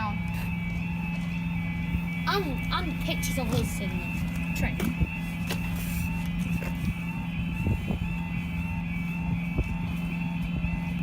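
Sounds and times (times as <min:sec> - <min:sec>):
train engine idling hum: 0:00.0 - 0:11.0.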